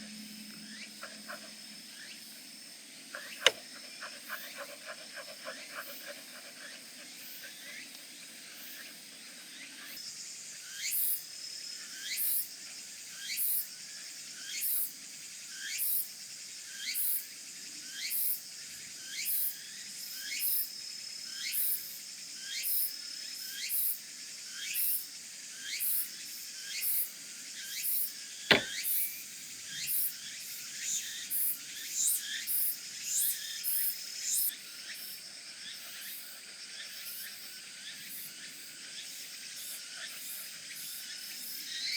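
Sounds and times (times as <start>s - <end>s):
sharp click: 28.5s - 28.7s.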